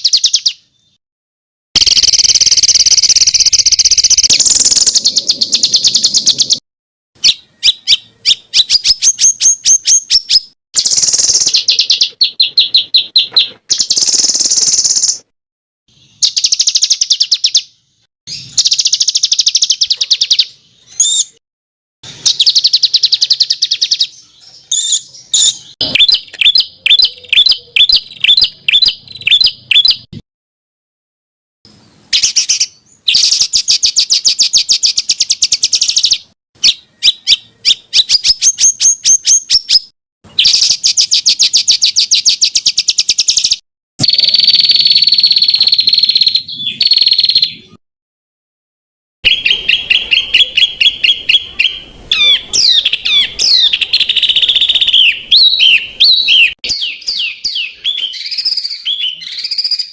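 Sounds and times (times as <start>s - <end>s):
songbird trilling: 1.8s - 6.6s, 7.2s - 15.2s, 22.2s - 30.1s, 32.1s - 47.8s, 49.2s - 59.9s.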